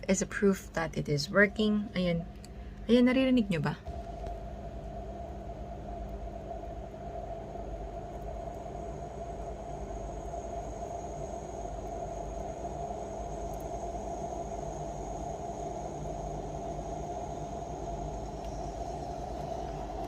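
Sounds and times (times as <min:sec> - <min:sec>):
water boiling in electric kettle: 0:03.9 - 0:20.0.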